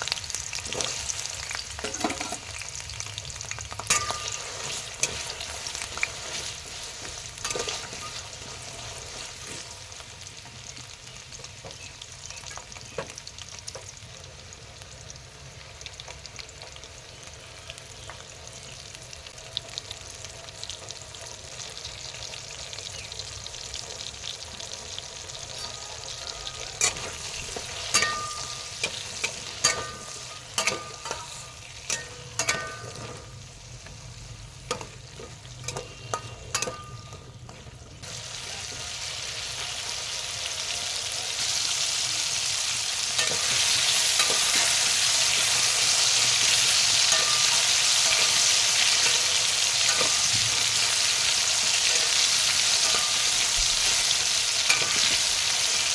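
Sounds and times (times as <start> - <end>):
food sizzling in oil: 0.0 - 55.9.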